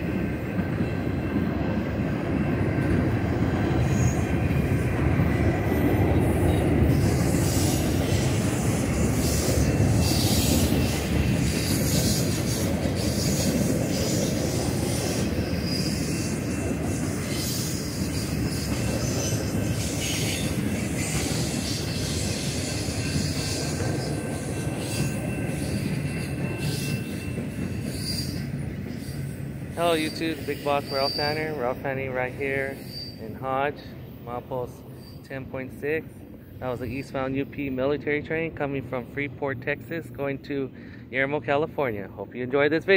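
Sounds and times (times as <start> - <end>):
train wheels rumbling on rails: 0.0 - 42.9
high wheel squeals: 5.4 - 33.9, 34.9 - 35.4.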